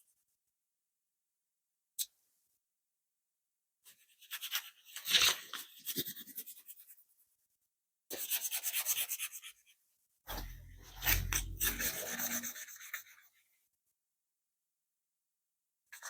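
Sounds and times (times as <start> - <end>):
sandpaper rubbing on metal: 10.3 - 12.8.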